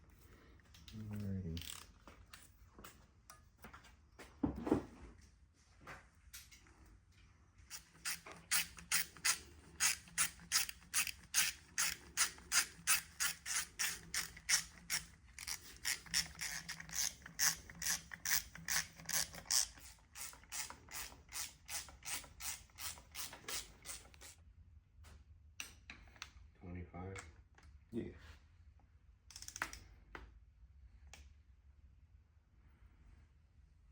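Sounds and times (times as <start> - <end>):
ratchet wrench clicking: 1.6 - 1.9, 7.7 - 24.4.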